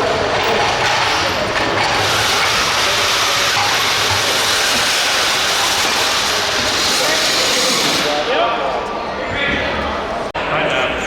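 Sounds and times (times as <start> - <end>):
motors whirring under load: 0.0 - 8.2.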